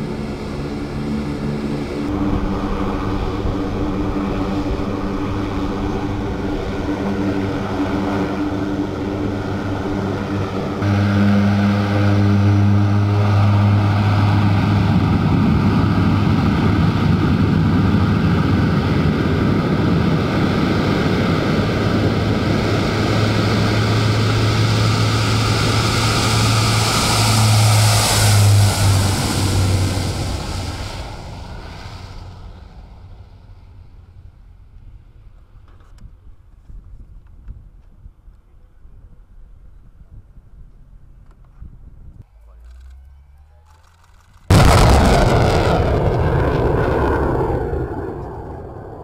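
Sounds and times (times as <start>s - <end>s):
rushing noise: 0.0s - 34.3s, 44.5s - 49.0s
large engine droning: 0.0s - 35.9s, 42.2s - 49.0s.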